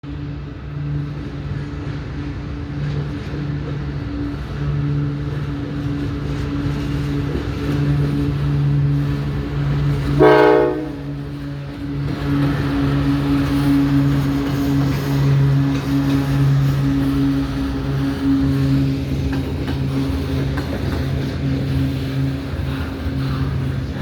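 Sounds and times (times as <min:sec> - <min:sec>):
diesel locomotive engine droning: 0:00.0 - 0:24.0
train horn blast: 0:10.1 - 0:11.6.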